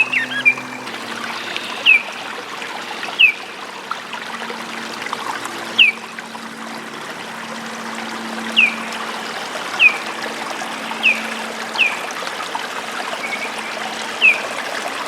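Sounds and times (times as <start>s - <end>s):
bird call: 0.0s - 2.3s, 8.5s - 8.9s, 13.2s - 14.5s
running water trickling: 0.0s - 15.0s.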